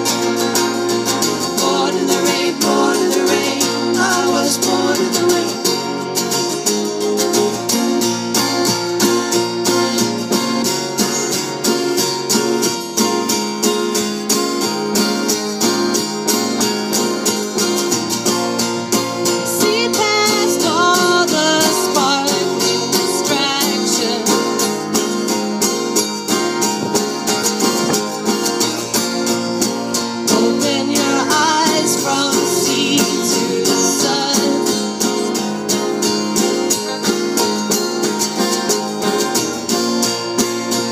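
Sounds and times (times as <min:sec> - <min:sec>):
person singing: 0:00.0 - 0:06.1, 0:19.3 - 0:25.3, 0:29.6 - 0:37.6
strummed acoustic guitar: 0:00.0 - 0:40.9.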